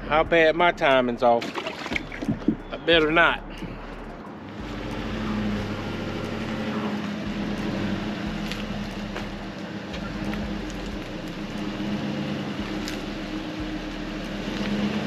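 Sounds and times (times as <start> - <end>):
vehicle engine idling: 2.0 - 15.0.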